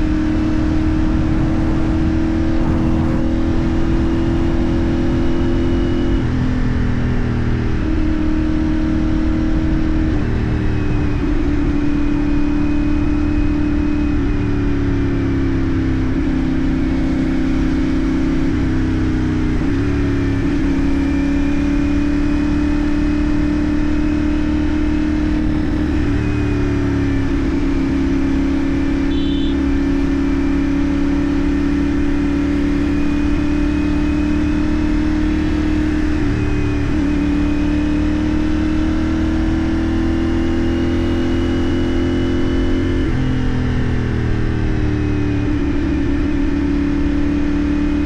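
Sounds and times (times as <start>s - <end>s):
motorcycle engine cruising: 0.0s - 48.0s
road and wind noise: 0.0s - 48.0s
high beep: 29.0s - 29.7s.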